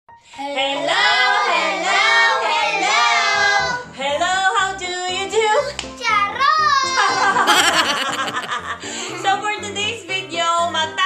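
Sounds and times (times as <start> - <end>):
musical accompaniment: 7.5 - 9.2.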